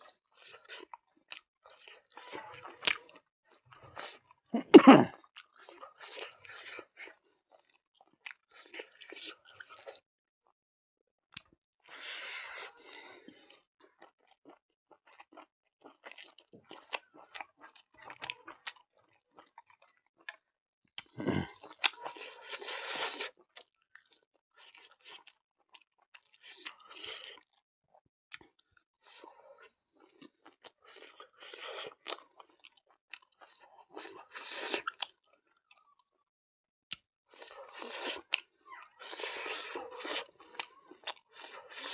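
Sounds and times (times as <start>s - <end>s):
person chewing and biting food: 7.5s - 10.0s, 11.4s - 27.6s, 30.2s - 35.9s, 36.9s - 41.9s.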